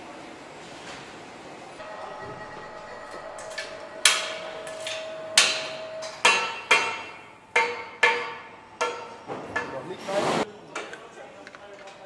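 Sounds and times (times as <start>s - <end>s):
metallic clanks of tools: 3.4s - 9.7s.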